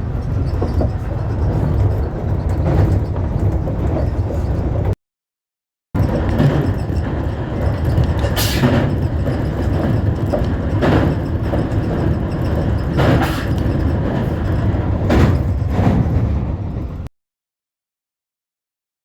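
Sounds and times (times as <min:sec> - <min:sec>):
train running low rumble: 0:00.0 - 0:05.0, 0:06.0 - 0:17.1.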